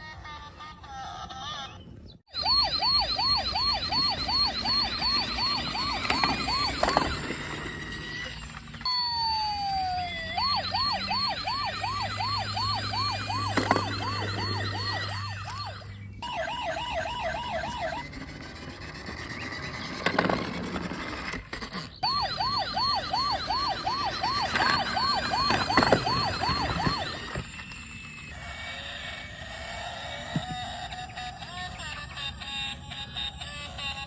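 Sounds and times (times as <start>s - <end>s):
toy car electronic siren: 2.3s - 34.0s.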